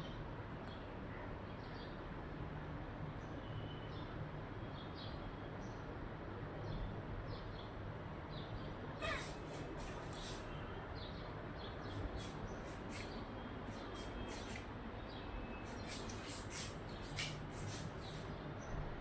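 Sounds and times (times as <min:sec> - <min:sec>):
faint bird chirps: 0:08.4 - 0:18.8.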